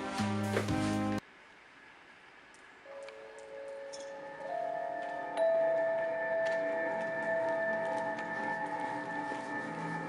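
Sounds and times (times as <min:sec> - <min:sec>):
bell-like music notes: 0:02.9 - 0:10.0.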